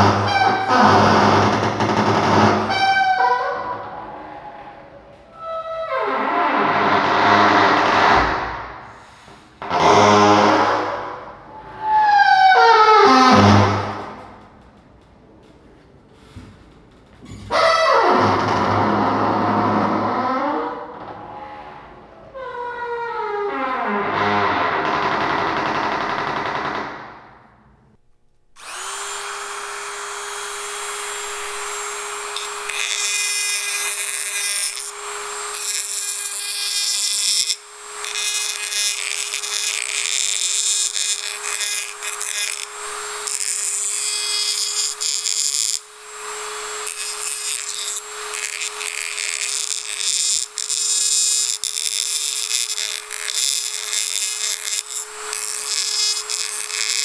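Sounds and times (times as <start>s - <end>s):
power tool whining and grinding: 0.0s - 3.9s, 28.6s - 57.0s.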